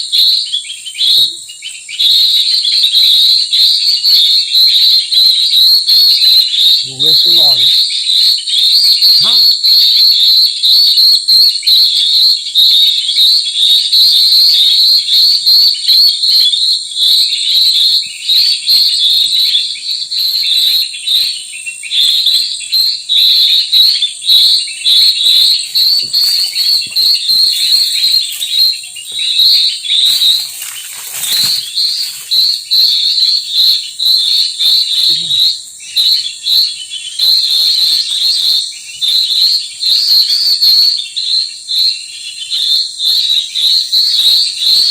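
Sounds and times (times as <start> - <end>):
birds chirping: 0.0 - 44.9
high-pitched insect drone: 2.0 - 44.9
rustling: 25.5 - 28.8, 29.9 - 32.7.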